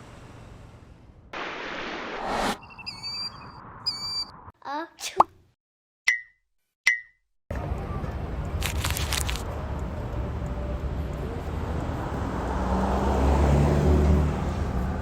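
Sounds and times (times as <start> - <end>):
road traffic: 7.5 - 15.0.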